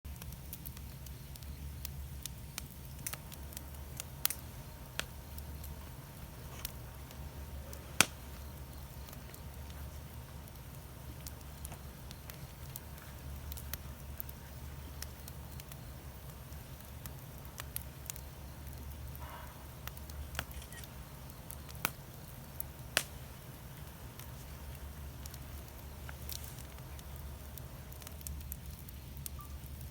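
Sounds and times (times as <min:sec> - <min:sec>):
wood fire crackling: 0:00.1 - 0:29.9
sharp pops: 0:08.0 - 0:09.8.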